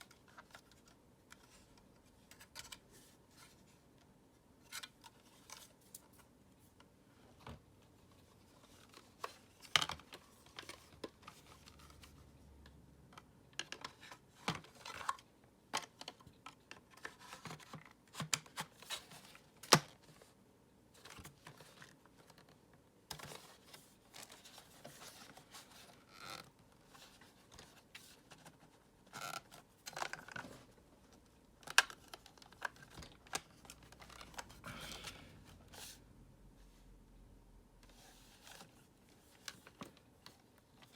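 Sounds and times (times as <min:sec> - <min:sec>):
plastic parts clicking and scraping: 0:00.0 - 0:03.7, 0:08.2 - 0:20.0, 0:21.0 - 0:35.9.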